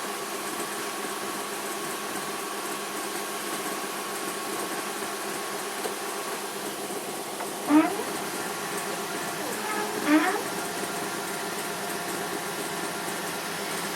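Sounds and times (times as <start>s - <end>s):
milling machine cutting metal: 7.4s - 12.4s.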